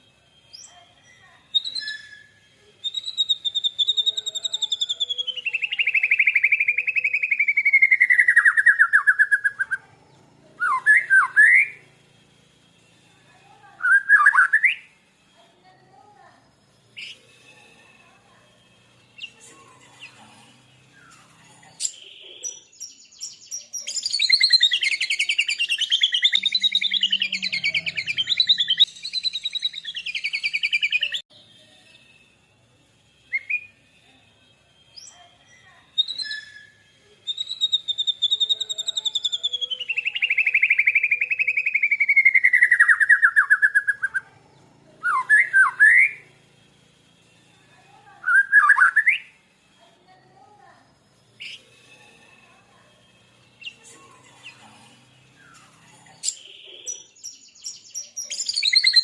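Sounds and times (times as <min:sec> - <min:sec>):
rising whistled bird notes: 0:01.5 - 0:09.8, 0:10.6 - 0:11.8, 0:13.8 - 0:15.0, 0:36.0 - 0:44.3, 0:48.2 - 0:49.4
bird rapid trills: 0:23.3 - 0:31.2.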